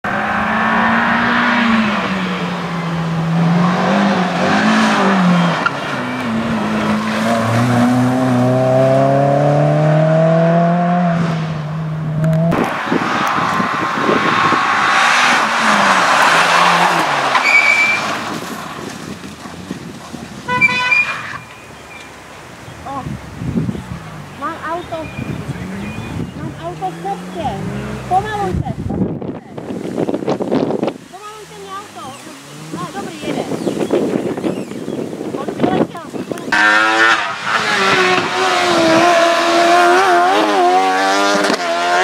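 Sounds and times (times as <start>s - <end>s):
car engine revving: 0.0s - 21.4s, 22.9s - 42.0s
tyre noise on tarmac: 11.0s - 41.7s.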